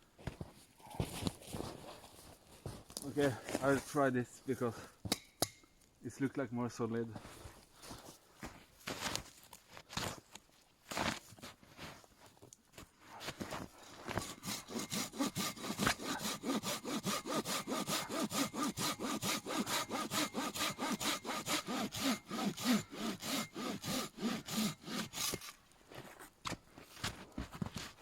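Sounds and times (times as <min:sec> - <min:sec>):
hand saw cutting log: 0:13.9 - 0:25.6.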